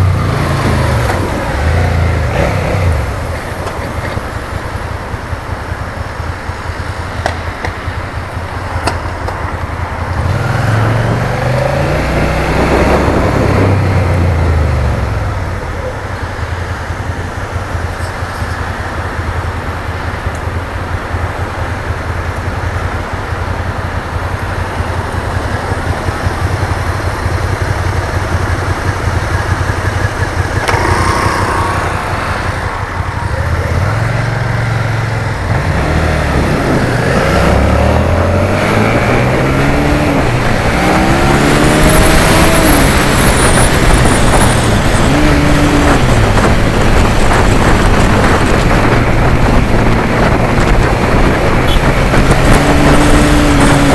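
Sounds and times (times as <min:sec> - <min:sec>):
motorcycle engine running: 0:00.0 - 0:53.9
wind rush: 0:08.1 - 0:15.5, 0:30.4 - 0:53.9.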